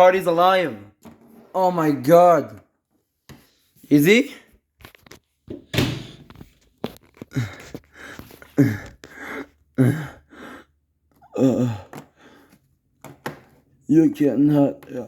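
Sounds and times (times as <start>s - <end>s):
person gasping and sighing: 7.2s - 12.6s
person breathing: 7.3s - 12.7s.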